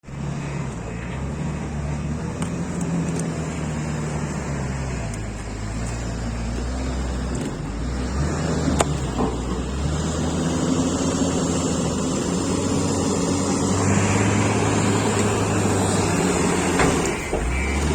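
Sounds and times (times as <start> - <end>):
heavy vehicle engine running: 0.0 - 17.9.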